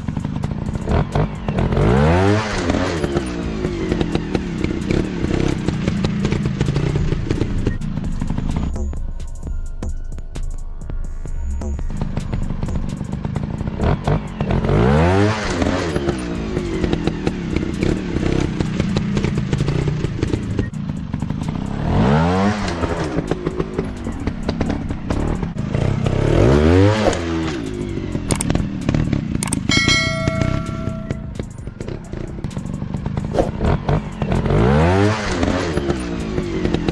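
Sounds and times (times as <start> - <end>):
dirt bike engine revving: 0.0 - 8.8, 11.9 - 36.9.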